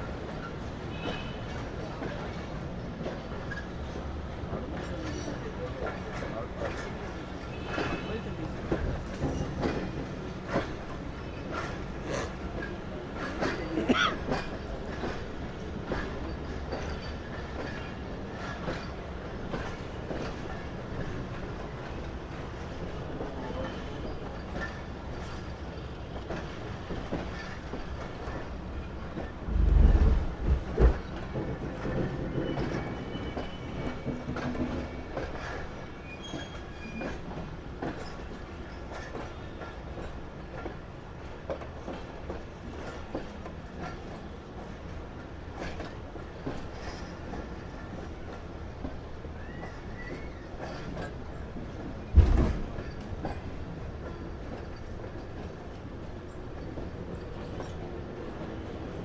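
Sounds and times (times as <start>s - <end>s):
train rumbling on rails: 0.0s - 59.0s
heavy low thumps: 29.4s - 31.0s.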